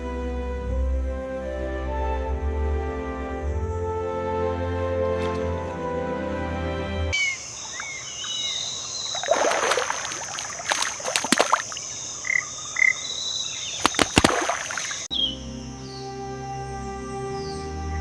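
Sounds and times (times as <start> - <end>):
music: 0.0 - 7.2, 15.1 - 18.0
high insect drone: 7.1 - 18.0
water splashes: 7.7 - 12.1, 13.7 - 15.1.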